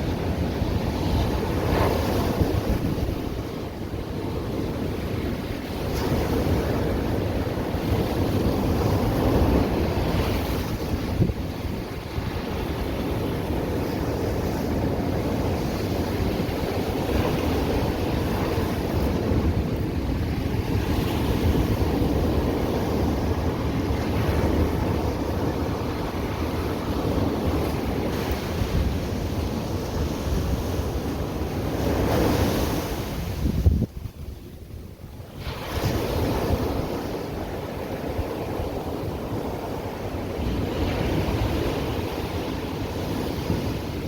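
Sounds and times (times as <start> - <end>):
ocean surf washing onto beach: 0.0 - 44.0.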